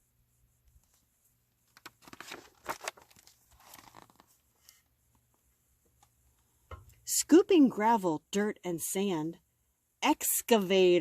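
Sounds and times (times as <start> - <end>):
book page rustling: 0.8 - 4.8.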